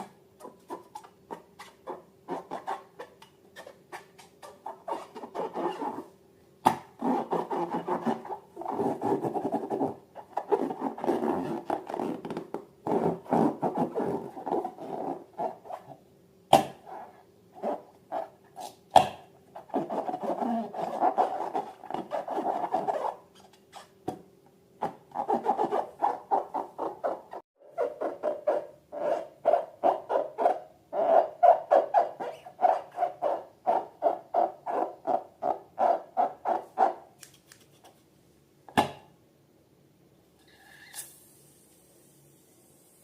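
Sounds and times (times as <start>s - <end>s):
rubber balloons squeaking: 0.0s - 6.1s, 7.0s - 16.0s, 16.6s - 18.8s, 19.6s - 24.0s, 24.8s - 37.0s.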